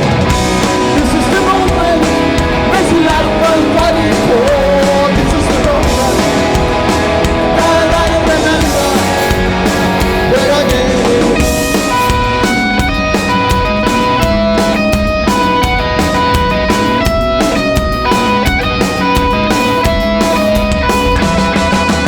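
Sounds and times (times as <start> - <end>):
bass guitar: 0.0 - 22.0
distorted electric guitars: 0.0 - 22.0
drums: 0.0 - 22.0
person singing: 0.8 - 6.6, 7.4 - 11.8.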